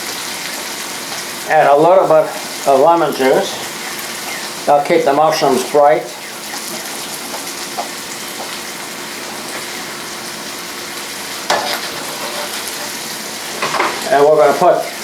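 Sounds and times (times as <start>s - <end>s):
sauce sizzling in a pan: 0.0s - 15.0s.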